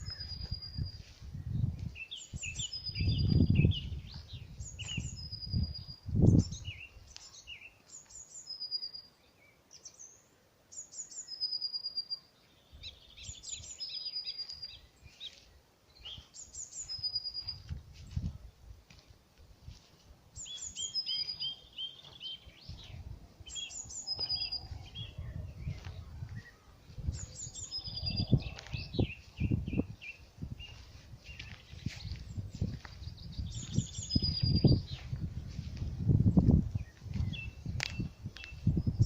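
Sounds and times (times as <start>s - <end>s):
birds chirping: 0.0s - 19.2s, 19.8s - 39.0s.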